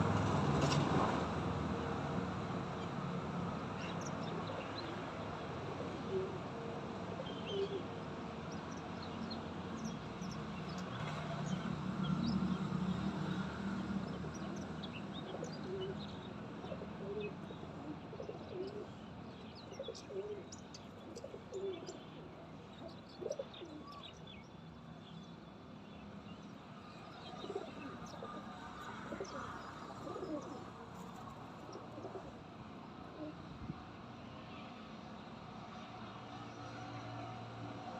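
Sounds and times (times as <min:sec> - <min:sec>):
pigeons cooing: 0:05.7 - 0:06.4, 0:15.3 - 0:16.0, 0:16.6 - 0:19.0, 0:19.7 - 0:22.0, 0:22.9 - 0:24.0, 0:27.4 - 0:30.7, 0:31.7 - 0:32.4.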